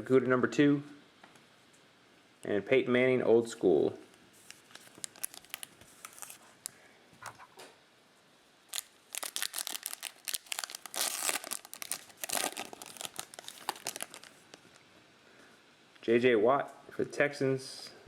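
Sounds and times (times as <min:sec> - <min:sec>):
wrapper crinkling: 0:04.4 - 0:06.7, 0:08.7 - 0:14.8.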